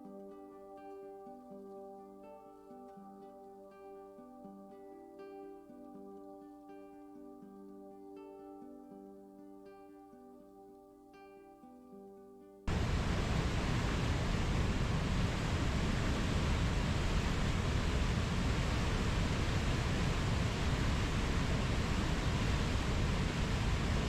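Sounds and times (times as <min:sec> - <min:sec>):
steady rushing nature ambience: 0:12.7 - 0:24.0.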